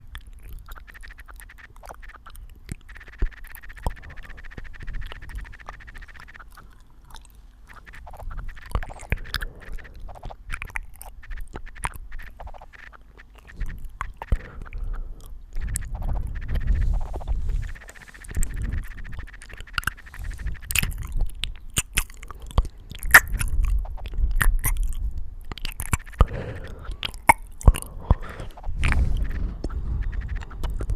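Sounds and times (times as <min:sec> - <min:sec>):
computer keyboard keys clicking: 0:00.1 - 0:06.7.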